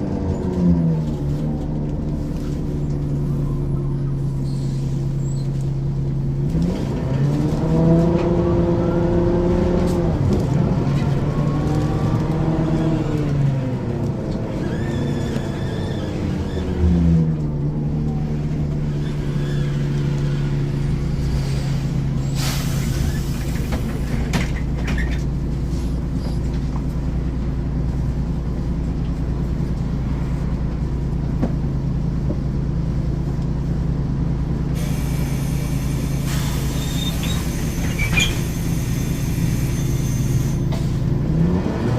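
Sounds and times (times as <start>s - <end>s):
bus engine idling: 0.0s - 6.5s, 9.5s - 41.2s
bus engine pulling away: 0.0s - 41.9s
short air hiss: 22.4s - 23.5s.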